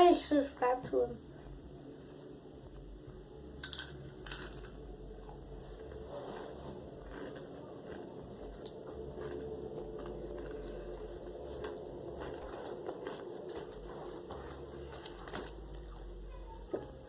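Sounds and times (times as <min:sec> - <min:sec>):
steady low hum: 0:00.0 - 0:17.0
chewing crisp chips: 0:03.6 - 0:16.2.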